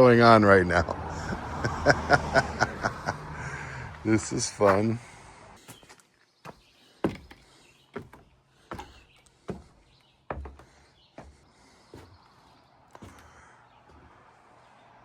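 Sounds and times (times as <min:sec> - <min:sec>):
footsteps walking: 0:05.6 - 0:14.2.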